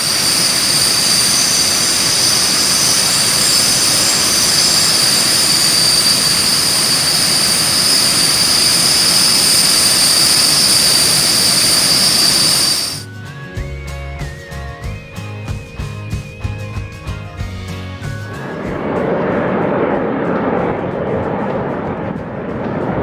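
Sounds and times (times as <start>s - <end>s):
jet engine rush and whine: 0.0s - 13.1s, 18.4s - 23.0s.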